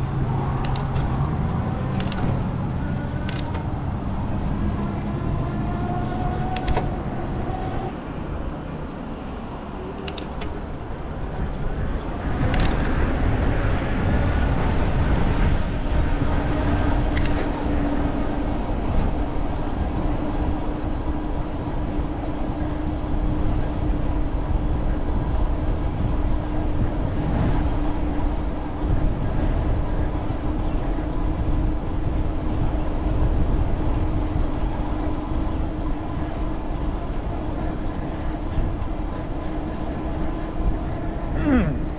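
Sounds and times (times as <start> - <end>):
vehicle road and engine noise: 0.0 - 41.9
steady hum: 27.7 - 41.9.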